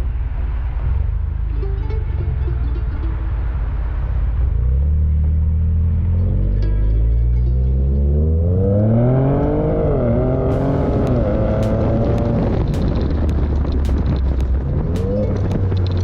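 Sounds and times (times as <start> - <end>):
car engine revving: 0.0 - 16.0
sharp clicks: 10.5 - 16.0.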